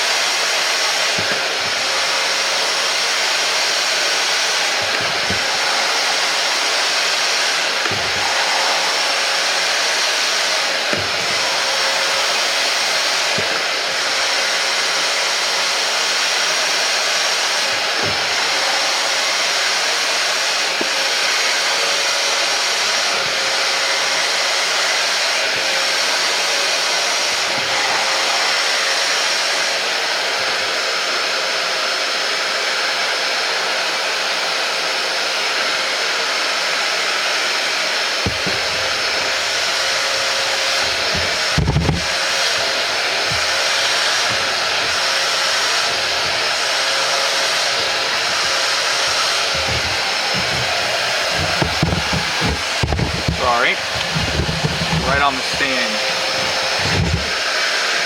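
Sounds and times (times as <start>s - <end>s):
carpet cleaner suction motor whining: 0.0s - 58.0s
low bumps and rubbing: 38.3s - 57.4s.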